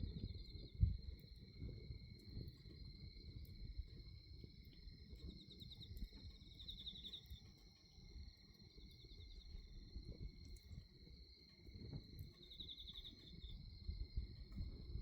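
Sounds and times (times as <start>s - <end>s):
night insects trilling: 0.0s - 15.0s
faint low rumble: 11.8s - 15.0s.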